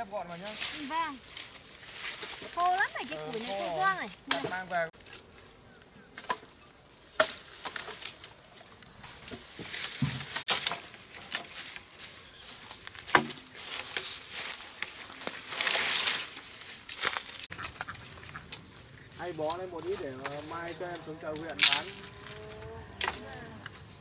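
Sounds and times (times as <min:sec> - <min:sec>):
rustling branches: 0:00.0 - 0:24.0
wood knocking and snapping: 0:13.0 - 0:13.4.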